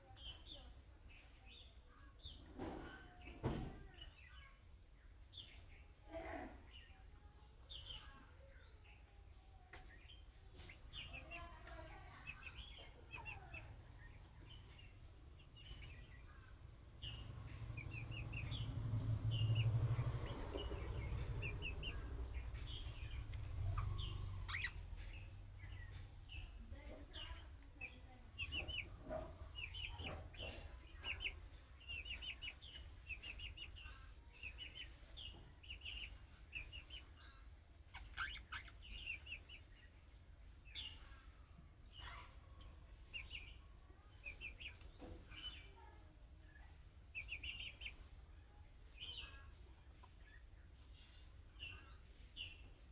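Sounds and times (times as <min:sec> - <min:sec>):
budgerigars chirping and warbling: 0:09.8 - 0:11.6, 0:12.2 - 0:42.4, 0:43.0 - 0:46.0, 0:46.7 - 0:48.1, 0:48.9 - 0:52.9.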